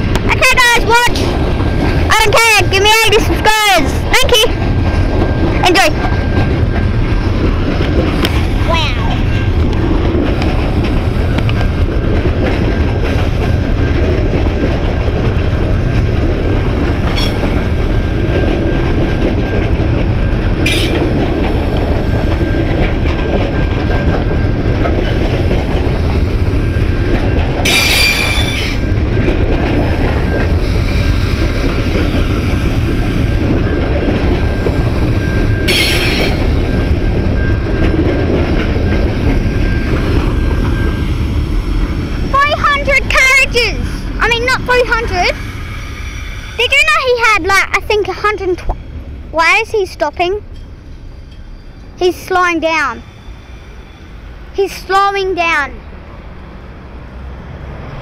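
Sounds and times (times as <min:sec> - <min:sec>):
train wheels rumbling on rails: 0:00.0 - 0:58.0
high-pitched wheel squeals: 0:27.6 - 0:28.9, 0:34.7 - 0:37.8, 0:53.0 - 0:54.3.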